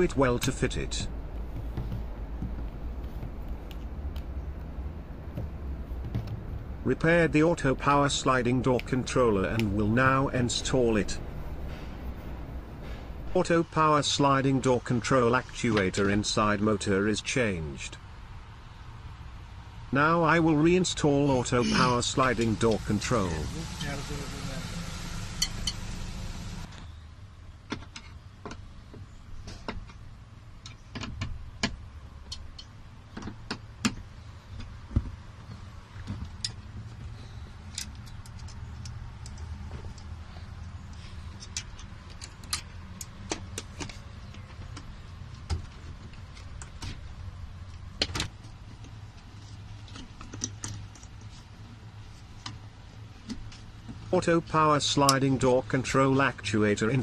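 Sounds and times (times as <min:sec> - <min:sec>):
low hum: 0:00.0 - 0:15.6.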